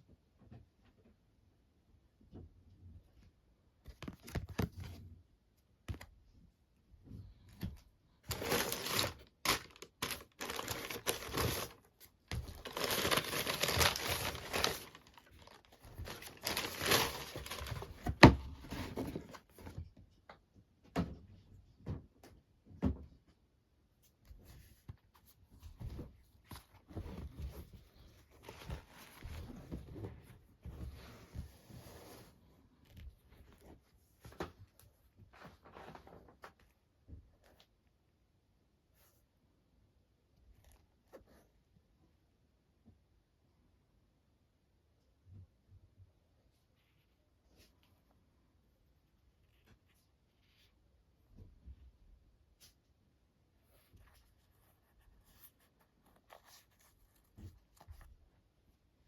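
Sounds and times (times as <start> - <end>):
packaging crinkling and rustling: 8.2 - 19.5.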